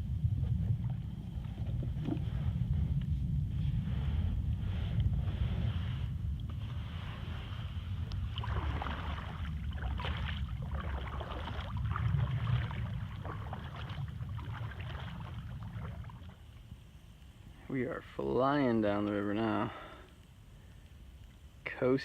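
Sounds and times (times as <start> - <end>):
wind rumble on microphone: 0.0 - 19.6
paddle strokes splashing: 8.2 - 16.6.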